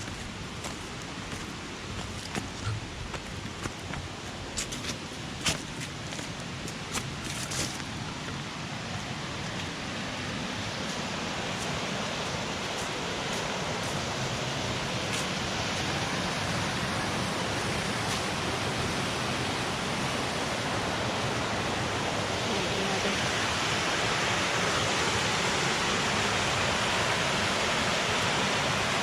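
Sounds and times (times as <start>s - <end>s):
waterfall rushing: 7.9s - 29.0s.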